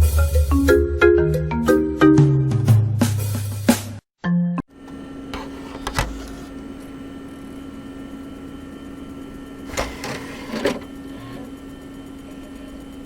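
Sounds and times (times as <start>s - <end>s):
steady hum with held tone: 4.7s - 13.0s.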